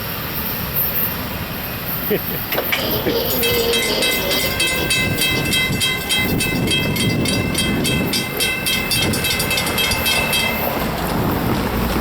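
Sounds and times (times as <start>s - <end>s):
crossing bell ringing: 2.6s - 11.4s.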